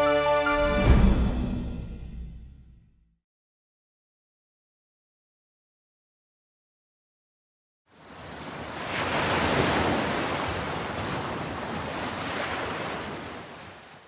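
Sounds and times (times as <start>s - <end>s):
sea waves washing in surf: 7.9s - 14.0s.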